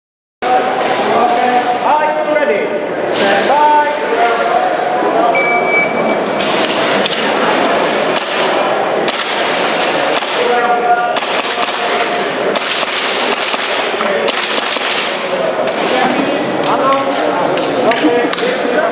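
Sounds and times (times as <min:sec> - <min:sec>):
airsoft pistol shots echoing: 0:08.1 - 0:10.6, 0:11.2 - 0:16.1.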